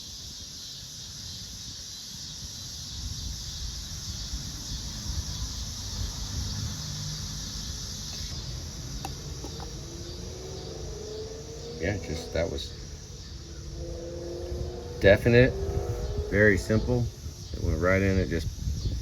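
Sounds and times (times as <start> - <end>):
insect chorus: 0.0 - 19.0
handling noise rumble: 7.2 - 19.0.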